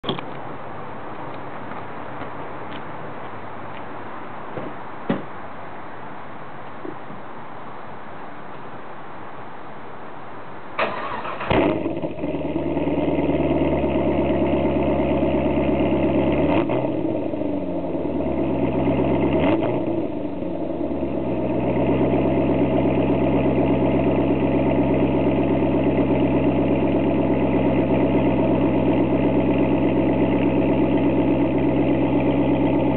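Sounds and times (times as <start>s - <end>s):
engine cranking: 10.8s - 11.9s
car engine idling: 10.8s - 32.9s.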